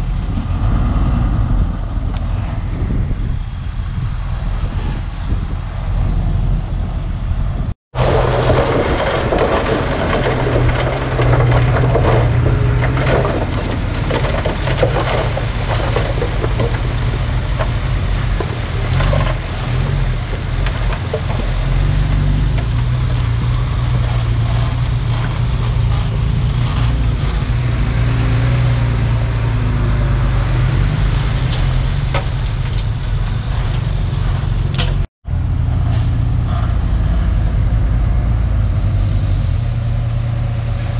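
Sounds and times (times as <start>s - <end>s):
diesel earthmoving machinery: 0.0s - 40.9s
scraping and clatter: 8.0s - 35.1s.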